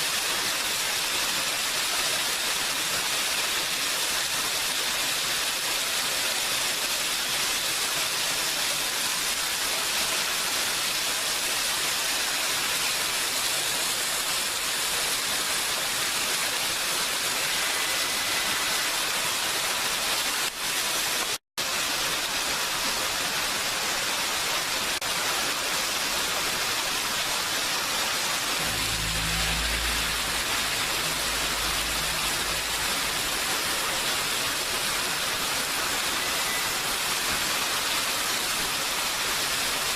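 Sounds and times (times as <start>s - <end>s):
heavy rain: 0.0s - 39.9s
low rumble: 28.5s - 34.8s.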